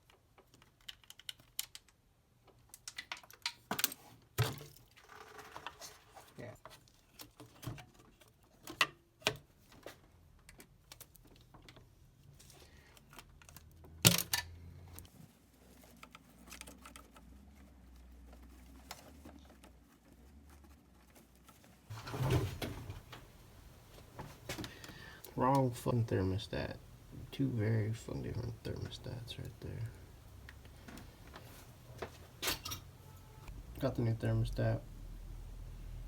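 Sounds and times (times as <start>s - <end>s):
metal parts clattering: 32.4s - 32.9s.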